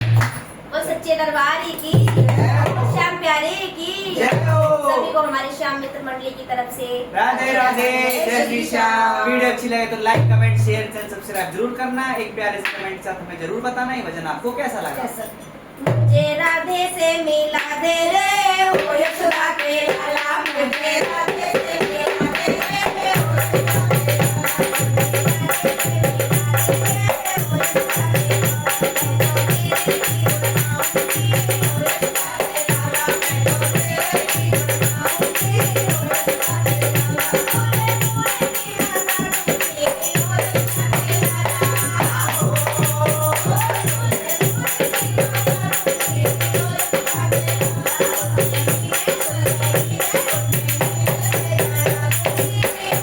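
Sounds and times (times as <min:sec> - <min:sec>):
jingling hand percussion: 0:00.0 - 0:03.3, 0:04.0 - 0:06.0, 0:07.6 - 0:08.5, 0:18.7 - 0:53.0
dholak drumming: 0:00.0 - 0:03.5, 0:04.1 - 0:05.6, 0:10.0 - 0:11.5, 0:15.6 - 0:16.5, 0:17.6 - 0:53.0
voices singing: 0:01.9 - 0:05.5, 0:07.0 - 0:10.5, 0:16.1 - 0:53.0.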